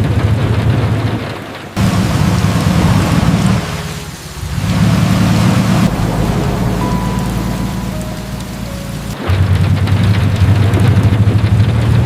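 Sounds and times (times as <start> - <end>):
rain falling: 0.0 - 12.0
strong low rumble: 1.8 - 11.4.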